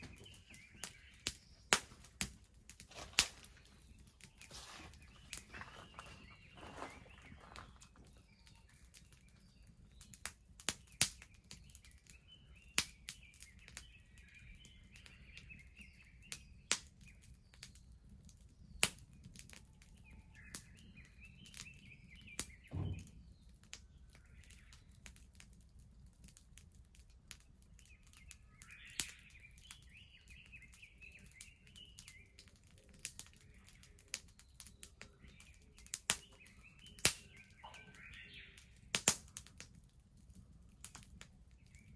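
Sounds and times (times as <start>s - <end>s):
bonfire crackling and popping: 0.0s - 41.9s
small birds chirping: 0.0s - 41.9s
dull thud: 22.7s - 23.2s.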